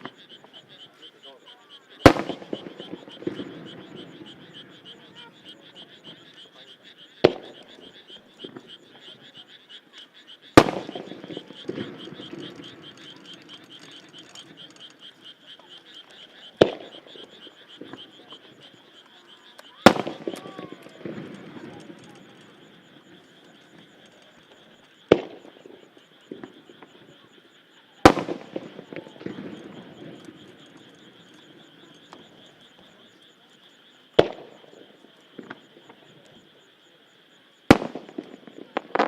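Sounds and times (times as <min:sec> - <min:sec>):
firework shells bursting: 0:02.0 - 0:06.4, 0:07.2 - 0:08.7, 0:10.6 - 0:27.1, 0:28.0 - 0:32.8, 0:37.7 - 0:39.0.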